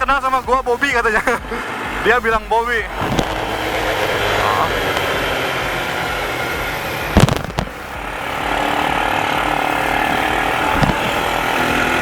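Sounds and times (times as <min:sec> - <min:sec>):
atv engine droning: 0:00.0 - 0:12.0
sharp knocks: 0:10.3 - 0:11.5.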